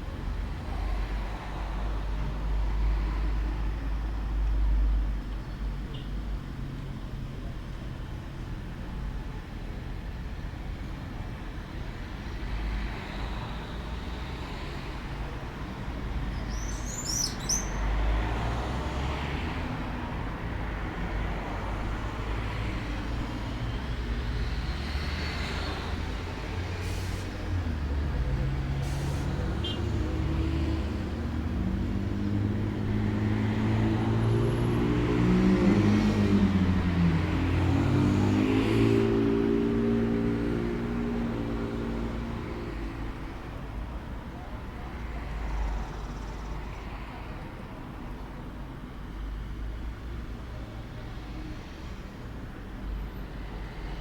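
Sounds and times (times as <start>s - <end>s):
bird chirps: 16.4s - 17.8s.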